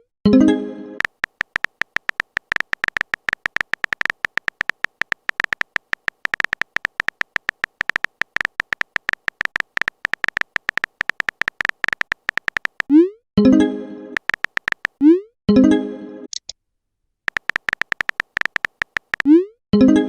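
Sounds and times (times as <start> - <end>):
typing sound effect blips: 1.0 - 13.1, 14.2 - 15.2, 17.3 - 19.5.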